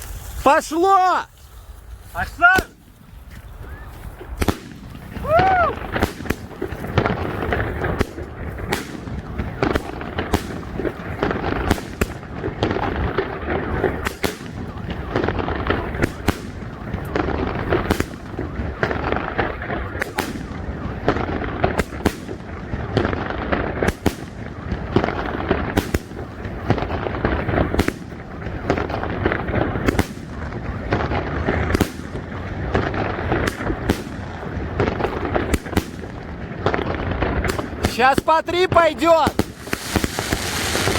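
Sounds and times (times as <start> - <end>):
fireworks bangs: 2.1 - 40.9
fireworks shells bursting: 37.5 - 40.9.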